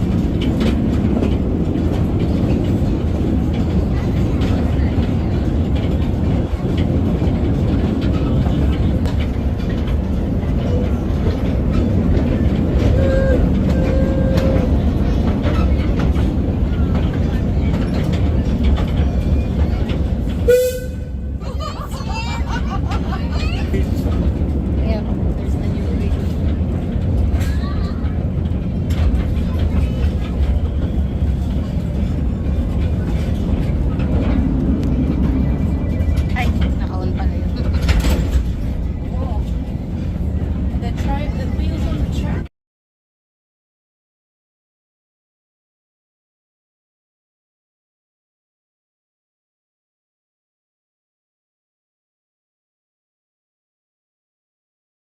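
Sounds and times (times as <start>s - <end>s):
clicks from train wheels: 0.0s - 21.2s, 24.0s - 42.4s
ride-on train rumbling: 0.0s - 42.5s.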